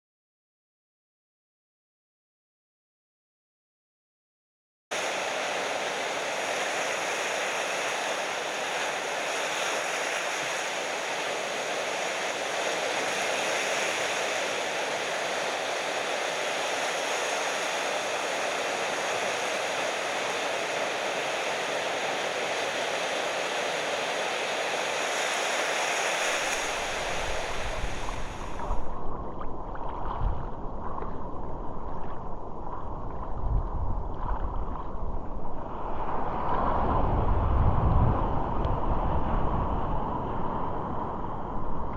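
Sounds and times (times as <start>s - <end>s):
ocean surf breaking: 4.9s - 29.1s
dull low rumble: 27.0s - 41.9s.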